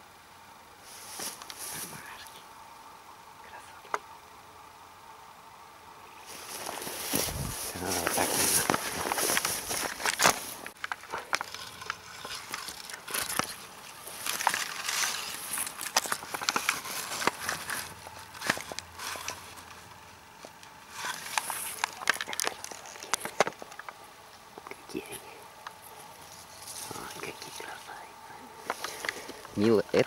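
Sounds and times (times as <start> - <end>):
plant stems rustling: 0.9 - 2.4, 6.2 - 23.9, 25.7 - 30.0
stems crackling and snapping: 1.1 - 2.4, 6.2 - 30.0.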